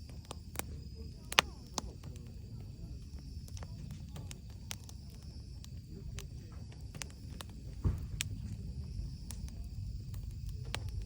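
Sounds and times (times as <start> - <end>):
low rumble: 0.0 - 11.0
wood fire crackling: 0.0 - 11.0
dull thump: 7.8 - 8.4.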